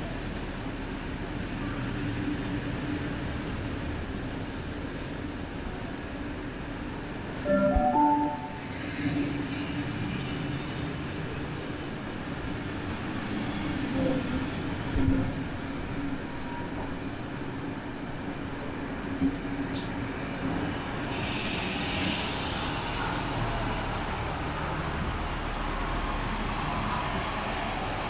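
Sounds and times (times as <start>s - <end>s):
short loud pitched sound: 7.5s - 8.6s
steel wheels rumbling on rail: 8.5s - 28.0s.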